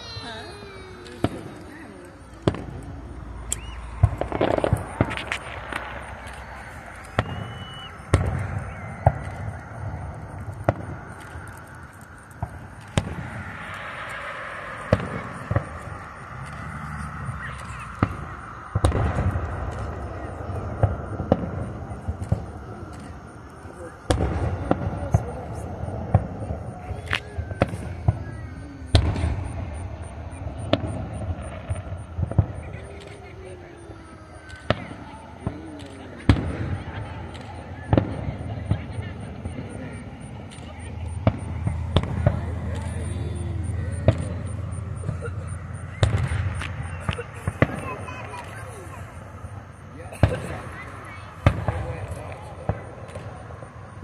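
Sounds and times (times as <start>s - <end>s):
firework shells bursting: 0.1s - 25.0s
firework pops and crackles: 0.1s - 54.0s
distant firework shells bursting: 1.0s - 54.0s
low rumble: 1.2s - 23.4s.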